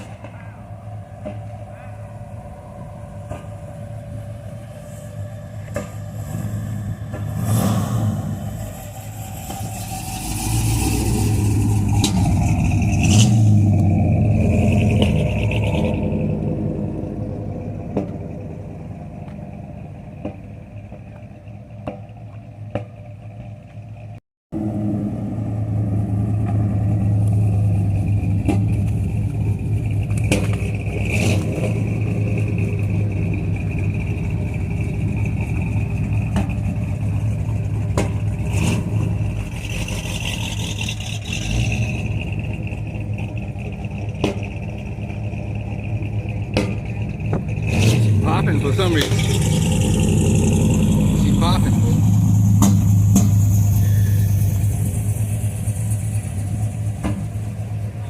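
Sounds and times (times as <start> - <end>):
car engine idling: 0.0 - 58.0
engine rumble: 0.0 - 58.0
exhaust pops: 26.4 - 58.0.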